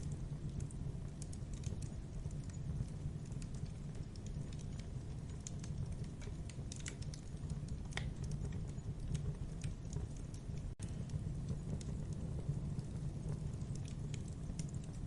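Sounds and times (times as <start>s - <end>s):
campfire crackling: 0.0s - 15.0s
fire pops and snaps: 0.0s - 15.0s.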